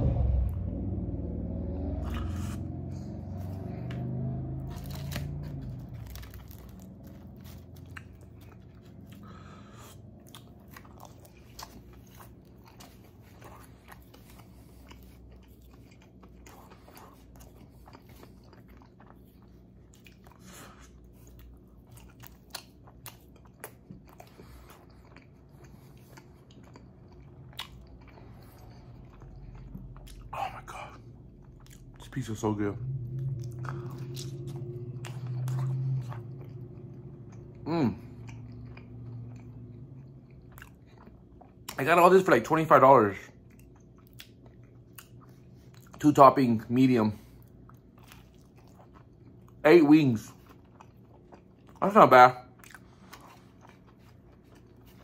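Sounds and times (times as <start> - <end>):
low hum: 0.0 - 41.8
person chewing pizza: 1.8 - 55.0.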